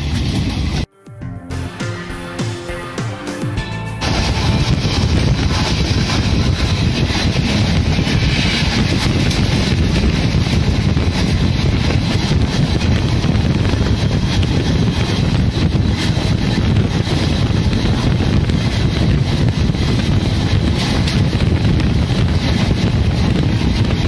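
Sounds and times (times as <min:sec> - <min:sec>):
train wheels rumbling on rails: 0:00.0 - 0:00.9, 0:03.5 - 0:24.0
wind buffeting microphone: 0:04.0 - 0:24.0.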